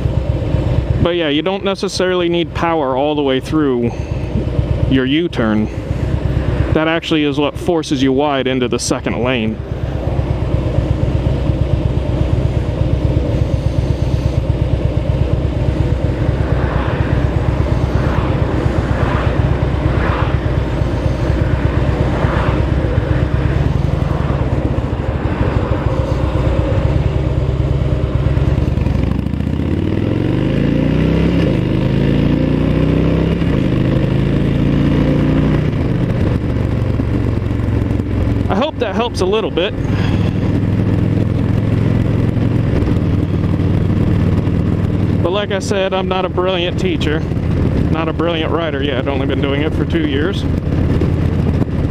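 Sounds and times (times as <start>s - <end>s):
motorcycle engine accelerating: 0.0s - 51.9s.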